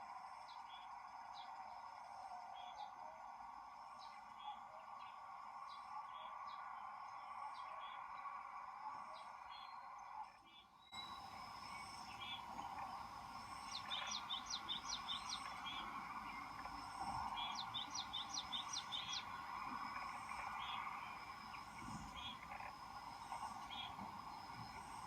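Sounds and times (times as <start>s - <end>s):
outdoor background hum: 0.0s - 25.0s
small bird calling: 11.0s - 25.0s.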